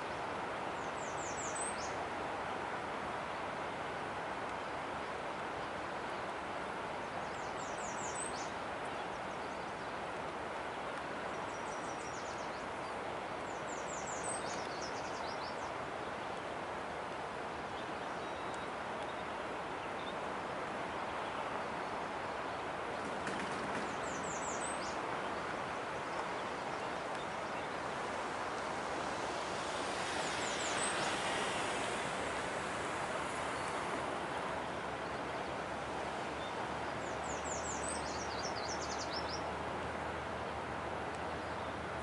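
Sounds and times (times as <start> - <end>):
songbird singing high chirps: 0.0 - 2.0, 7.1 - 10.0, 11.3 - 16.4, 17.7 - 20.3, 24.0 - 27.9, 36.4 - 39.6, 41.1 - 41.8
rushing water or wind: 0.0 - 42.0.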